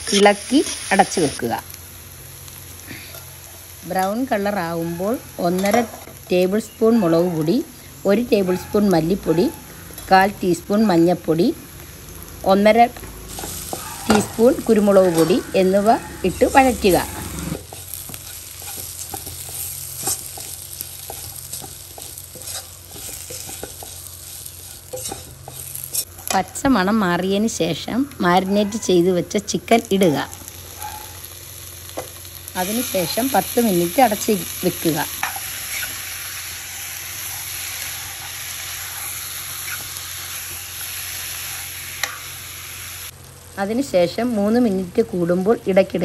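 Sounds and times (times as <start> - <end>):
onions sizzling in oil: 0.0 - 46.0
spatula scraping pan: 13.2 - 26.3, 37.2 - 40.0
faint spatula scrapes: 21.1 - 26.1.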